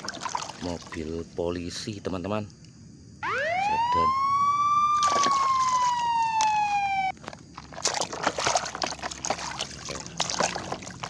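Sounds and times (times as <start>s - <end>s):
water splashing and sloshing: 0.0s - 1.3s, 4.9s - 11.0s
police siren wail: 3.2s - 7.1s.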